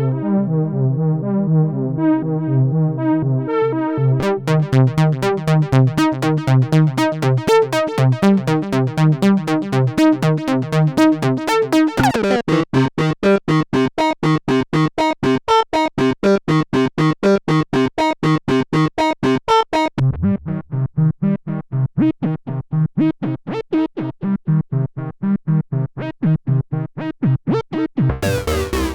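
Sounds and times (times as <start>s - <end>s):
synthesizer sequenced notes: 4.2s - 13.1s, 28.1s - 28.9s.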